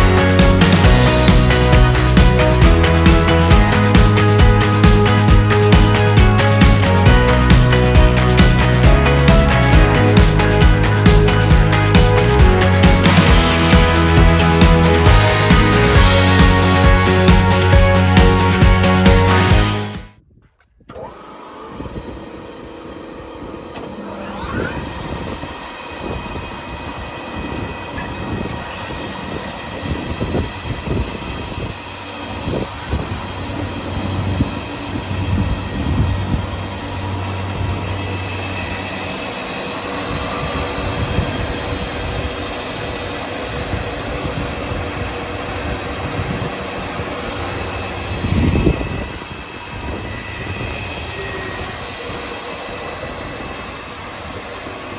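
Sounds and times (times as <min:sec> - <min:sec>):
knocks and rumbling: 0:00.0 - 0:20.1
planer motor high whine: 0:00.0 - 0:20.1, 0:20.9 - 0:54.9.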